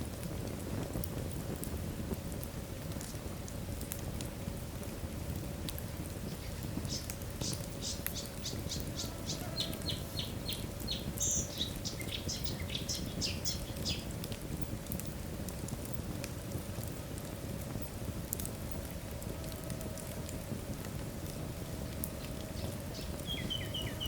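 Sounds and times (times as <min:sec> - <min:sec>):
fire rumbling: 0:00.0 - 0:24.0
high-pitched fire crackles: 0:00.0 - 0:24.0.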